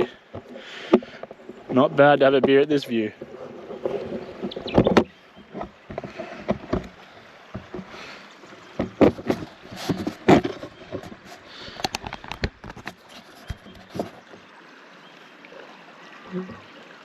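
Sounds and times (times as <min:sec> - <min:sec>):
splashes and knocks in water: 0:00.0 - 0:14.5
running water: 0:00.0 - 0:17.0.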